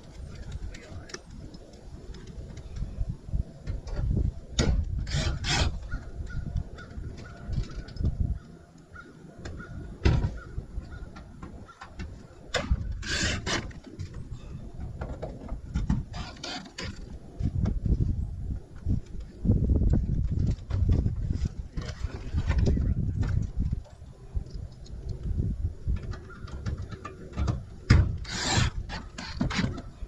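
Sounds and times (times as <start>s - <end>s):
knocking and scraping of roofing: 3.6s - 8.2s, 9.4s - 18.0s, 19.9s - 24.0s, 25.9s - 30.0s.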